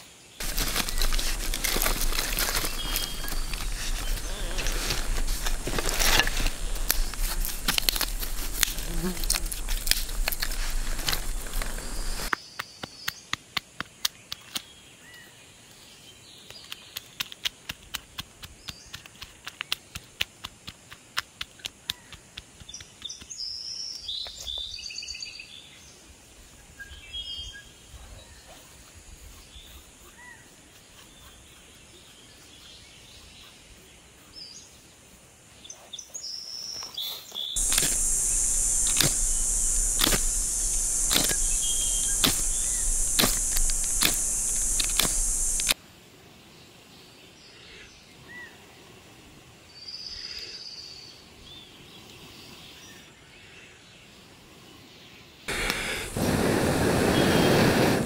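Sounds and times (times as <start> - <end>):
loud hiss with sharp crackles: 0.0 - 12.4, 37.6 - 45.8, 55.4 - 58.0
birds chirping: 0.4 - 12.3, 37.4 - 45.8.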